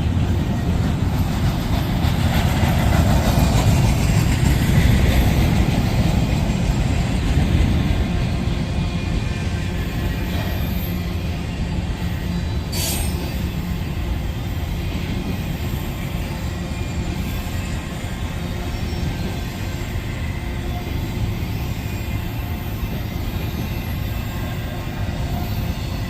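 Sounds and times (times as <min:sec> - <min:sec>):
train wheels rumbling on rail: 0:00.0 - 0:26.0
high wheel squeal: 0:08.0 - 0:26.0.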